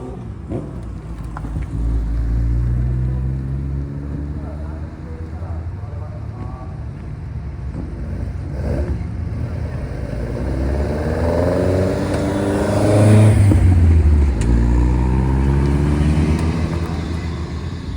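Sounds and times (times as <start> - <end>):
car engine revving loud exhaust: 0.0 - 4.9, 7.7 - 17.9.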